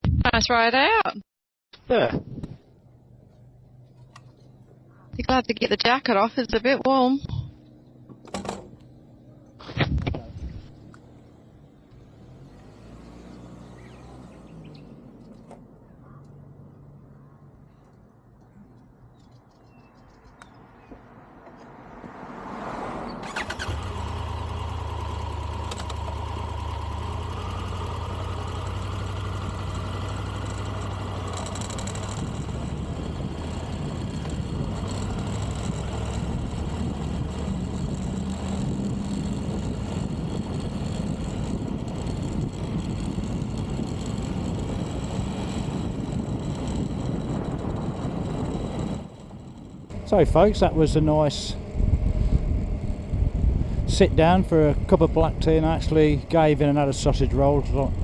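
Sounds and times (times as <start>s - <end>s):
motorcycle engine starting and idling: 7.7s - 9.6s, 23.0s - 58.0s.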